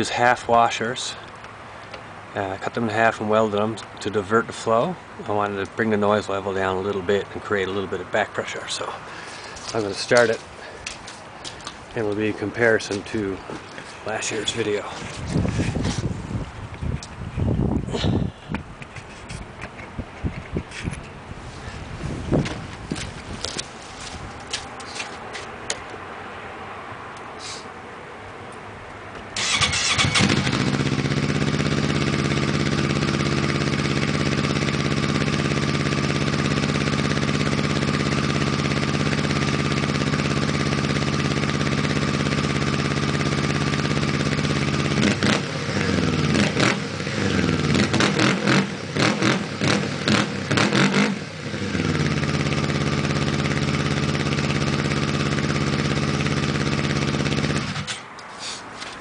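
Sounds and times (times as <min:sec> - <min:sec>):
snowmobile engine idling and revving: 0:29.8 - 0:58.0.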